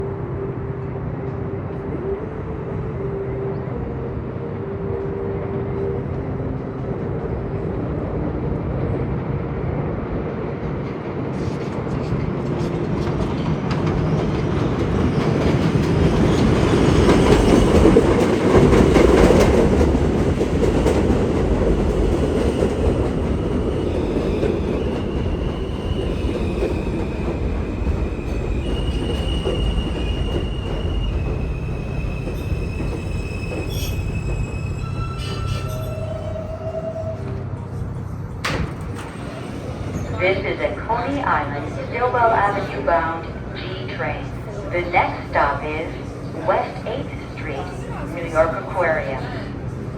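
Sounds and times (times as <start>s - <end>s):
train wheels clattering on rail: 11.3s - 36.0s, 38.3s - 40.2s.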